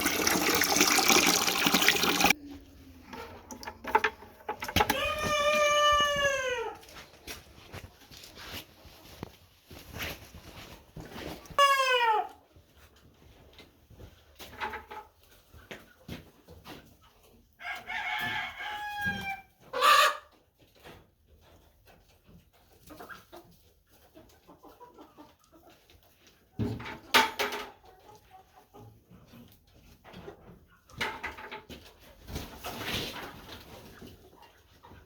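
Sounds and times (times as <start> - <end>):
chickens calling: 4.7 - 7.0, 11.6 - 12.4, 19.0 - 20.3
chicken squawks: 18.9 - 20.3.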